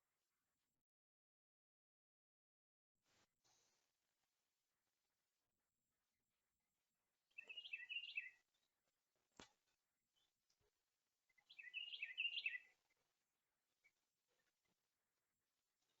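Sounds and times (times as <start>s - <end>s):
songbird warbling: 7.4s - 8.4s, 11.4s - 12.8s.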